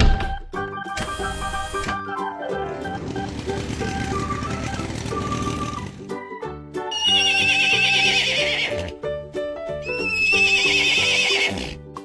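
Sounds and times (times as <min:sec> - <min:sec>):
cheerful background music: 0:00.0 - 0:12.0
cartoon horse whinnies: 0:06.9 - 0:08.9, 0:09.8 - 0:11.8.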